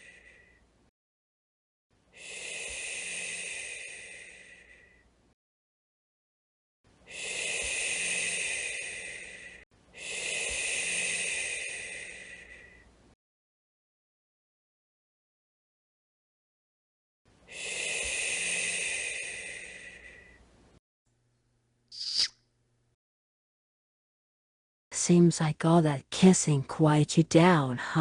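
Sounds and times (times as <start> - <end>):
woman shushing: 21.9 - 22.3.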